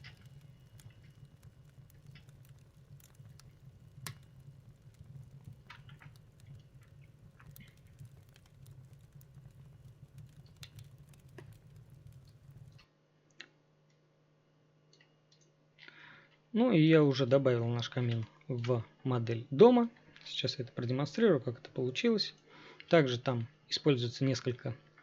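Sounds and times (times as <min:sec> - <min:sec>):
burning wood crackling: 0:00.0 - 0:12.8
low fire rumble: 0:00.0 - 0:12.8.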